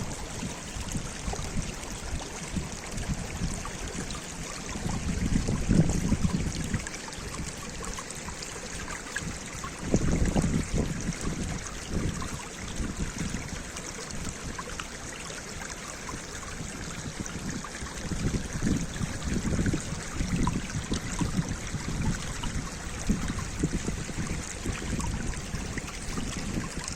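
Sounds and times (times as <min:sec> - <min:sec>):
stream water rushing: 0:00.0 - 0:26.9.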